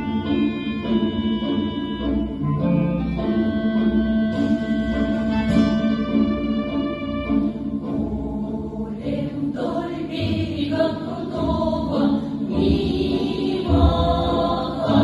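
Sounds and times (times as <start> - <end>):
instrumental accompaniment: 0.0 - 15.0
choir singing in unison: 0.2 - 2.3, 7.4 - 15.0.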